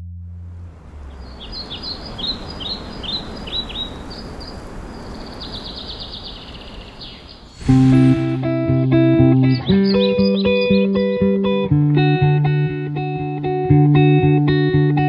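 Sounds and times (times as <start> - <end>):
outdoor hiss: 0.4 - 8.7
songbird calling: 1.0 - 8.6, 9.4 - 11.4.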